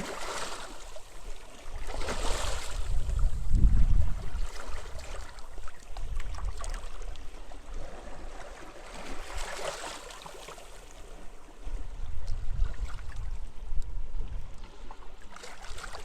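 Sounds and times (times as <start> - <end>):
small splashes: 0.0 - 1.1
sea waves washing on beach: 0.0 - 11.4
wind rumbling on microphone: 1.2 - 8.3, 11.4 - 15.2.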